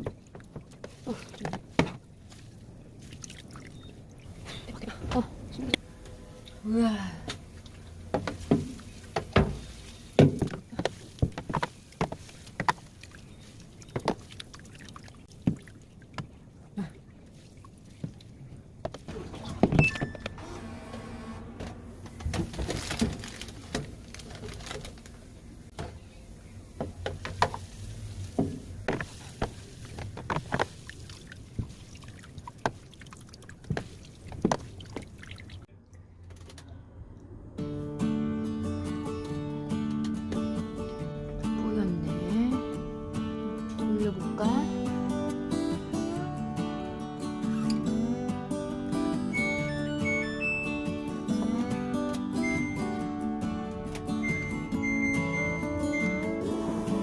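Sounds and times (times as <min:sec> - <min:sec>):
water sloshing in washing machine: 0:00.0 - 0:05.7, 0:07.3 - 0:25.2, 0:26.8 - 0:35.7
knocks and clunks: 0:08.1 - 0:12.9, 0:18.8 - 0:25.0.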